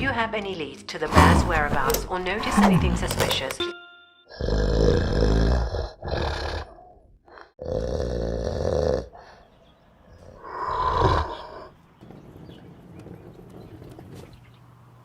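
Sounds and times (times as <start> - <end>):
bear growling and grunting: 1.0 - 3.6, 4.3 - 11.8.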